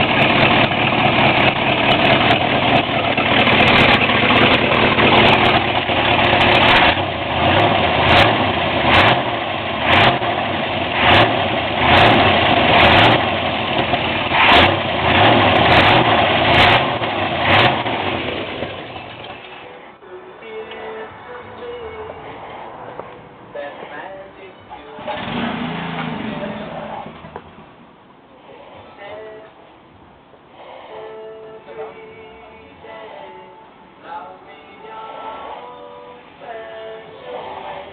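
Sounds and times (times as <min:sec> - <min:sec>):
car engine revving: 0:00.0 - 0:19.3, 0:25.0 - 0:27.8.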